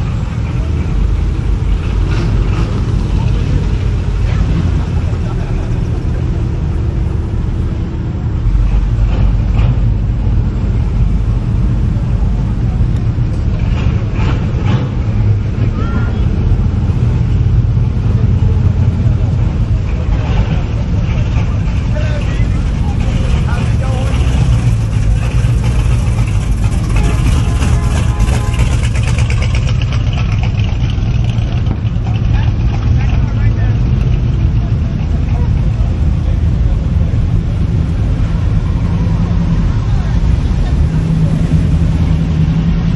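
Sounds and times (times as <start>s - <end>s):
car engine idling: 0.0s - 42.9s
vehicle low rumble: 0.0s - 42.9s.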